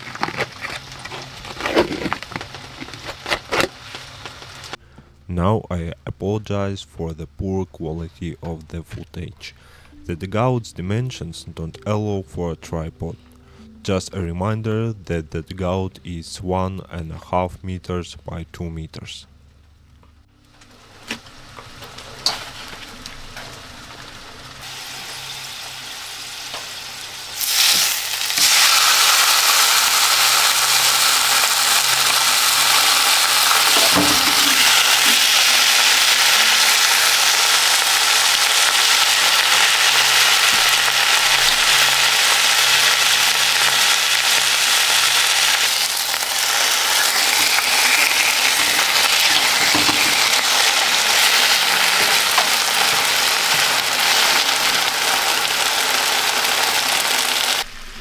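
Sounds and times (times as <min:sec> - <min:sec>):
food sizzling in a pan: 0:00.0 - 0:04.8, 0:20.6 - 0:58.0.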